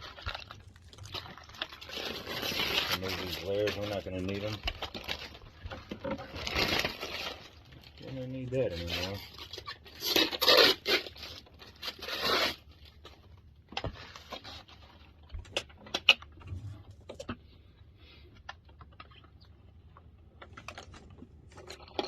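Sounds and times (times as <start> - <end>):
packing rustling and tearing: 0.0 - 13.3.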